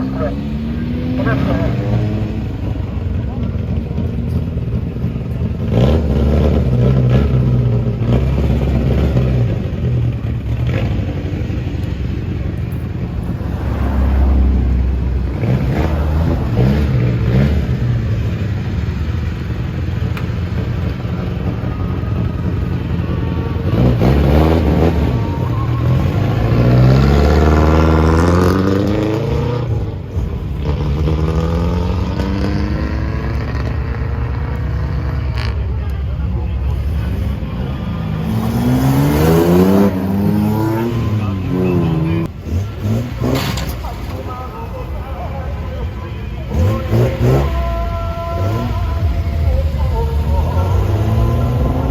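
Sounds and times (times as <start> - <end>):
loud car engines revving: 0.0 - 51.9.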